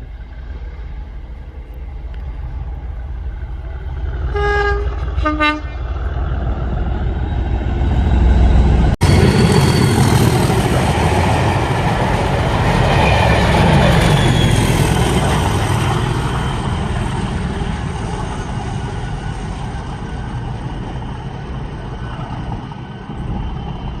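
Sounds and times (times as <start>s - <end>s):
diesel locomotive engine rumble: 0.0s - 24.0s
train wheels on rail: 0.0s - 24.0s.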